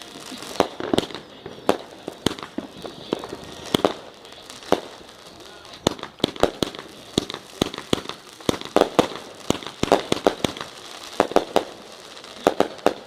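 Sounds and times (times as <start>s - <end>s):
firework cake bangs: 0.0s - 13.0s.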